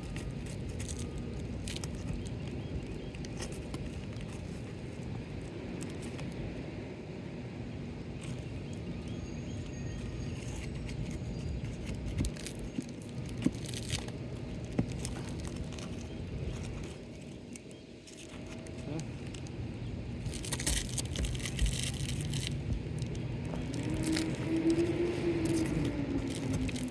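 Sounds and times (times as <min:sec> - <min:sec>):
low rumble: 0:18.4 - 0:26.9.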